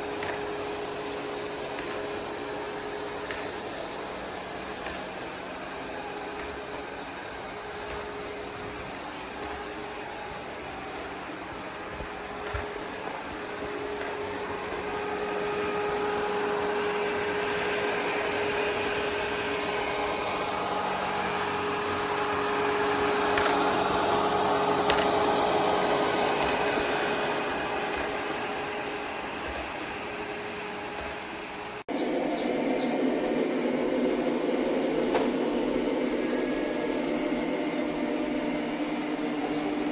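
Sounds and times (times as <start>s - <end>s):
robot vacuum whirring: 0.0s - 39.9s.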